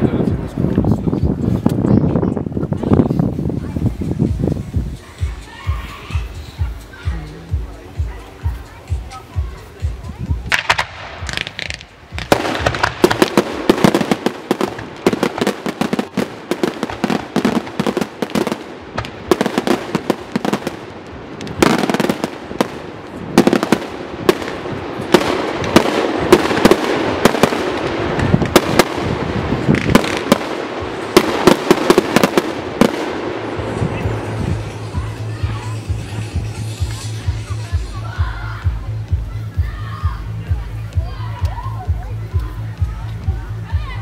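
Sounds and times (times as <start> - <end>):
firework barrage bangs: 10.5 - 34.7.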